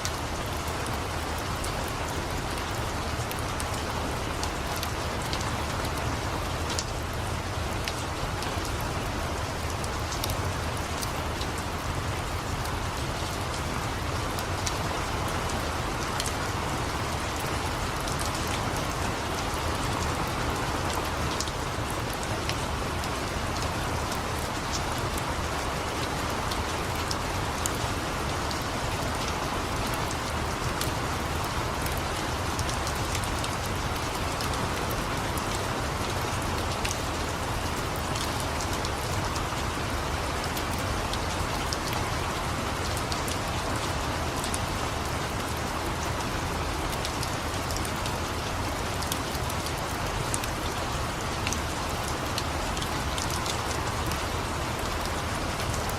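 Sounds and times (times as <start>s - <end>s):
rain falling: 0.0s - 55.9s.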